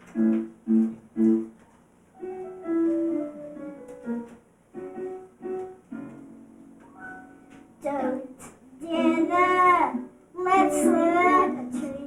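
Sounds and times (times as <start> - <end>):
piano melody: 0.0 - 12.0.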